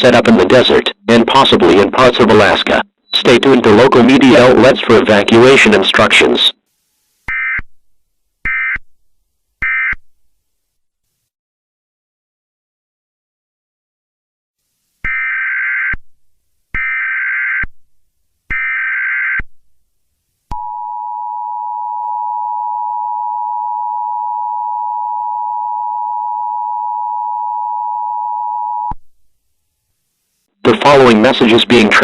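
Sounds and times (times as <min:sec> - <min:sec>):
two-tone attention signal: 0:20.6 - 0:29.0.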